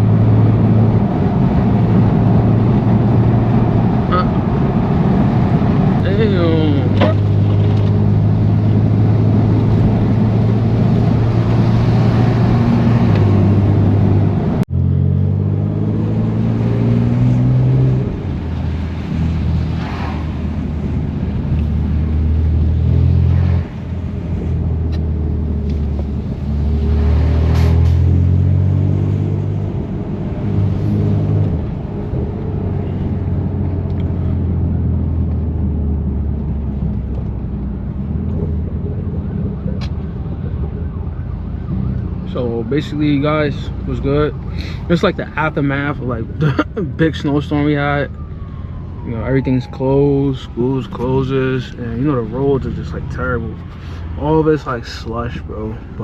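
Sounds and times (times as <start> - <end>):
car engine revving: 0.0 - 40.4.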